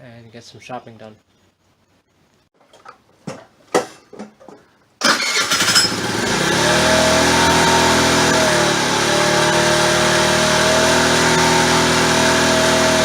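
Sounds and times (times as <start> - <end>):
scooter engine starting and idling: 5.0 - 13.0.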